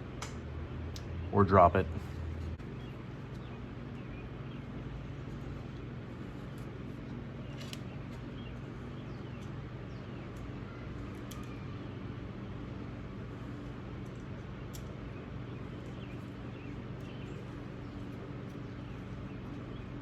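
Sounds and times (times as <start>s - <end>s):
low hum: 0.0s - 20.0s
small metal parts clicking: 10.3s - 11.6s.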